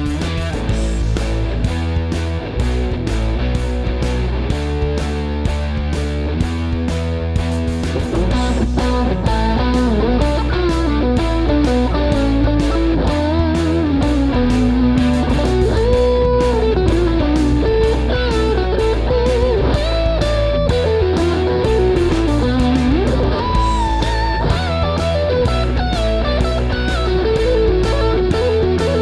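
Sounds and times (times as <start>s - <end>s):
bass: 0.0s - 29.0s
electric guitar lead line: 0.0s - 29.0s
steady drum beat: 0.0s - 29.0s.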